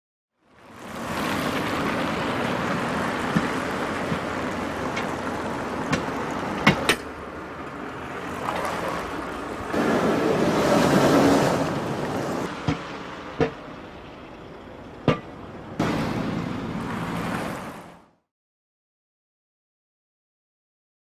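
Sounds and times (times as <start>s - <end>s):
car road and engine noise: 0.3s - 18.3s
sharp knocks: 5.9s - 7.1s, 12.6s - 13.7s, 15.0s - 16.0s.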